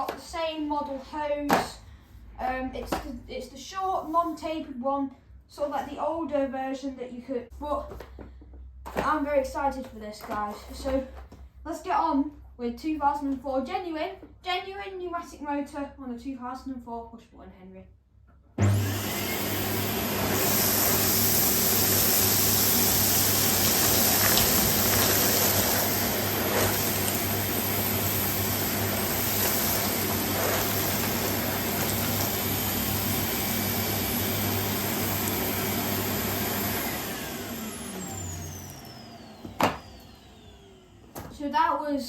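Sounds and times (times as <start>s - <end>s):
vacuum motor winding down: 18.6s - 41.2s
vacuum cleaner running: 18.6s - 41.4s
debris clicking up hose: 22.4s - 32.6s.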